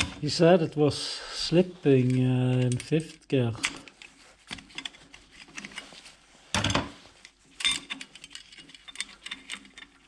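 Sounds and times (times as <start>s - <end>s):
metal tools clicking and clinking: 2.0s - 5.8s, 7.6s - 10.0s
metal parts clattering: 7.6s - 10.0s.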